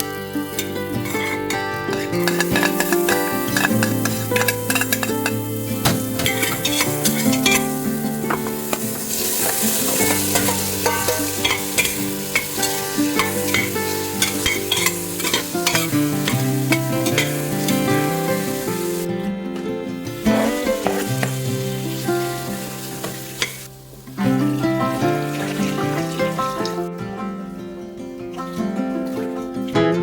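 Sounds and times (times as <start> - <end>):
food sizzling in a pan: 0.0 - 19.1, 20.1 - 26.9
background music: 0.0 - 30.0
utensil stirring and clicking: 0.6 - 7.7, 8.4 - 16.4, 17.0 - 17.3.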